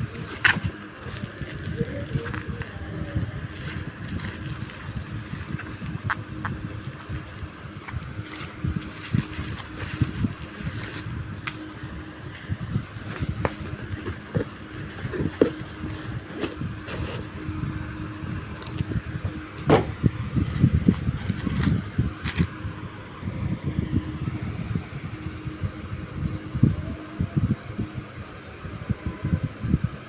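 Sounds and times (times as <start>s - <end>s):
faint steady hum: 0.0s - 30.0s
package being opened: 6.8s - 17.4s.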